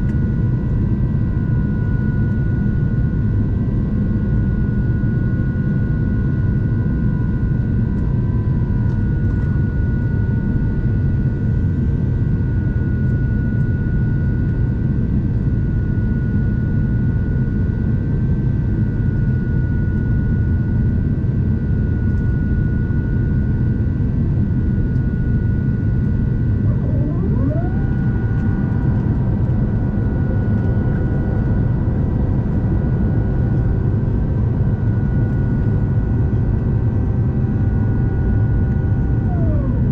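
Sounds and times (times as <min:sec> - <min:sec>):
low rumble of engines and airflow: 0:00.0 - 0:39.9
steady high whine: 0:18.5 - 0:39.9
tone sweeping up and down: 0:26.6 - 0:29.0.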